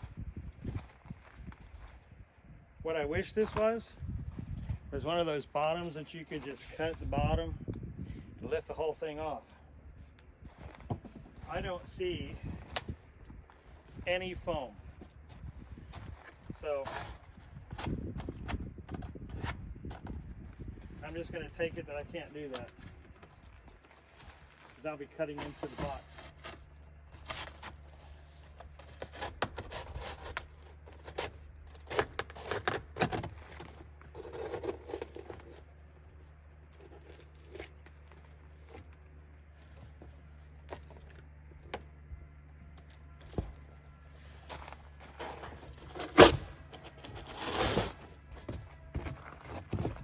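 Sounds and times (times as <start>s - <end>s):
cardboard box tearing: 29.0s - 35.6s, 44.5s - 48.2s.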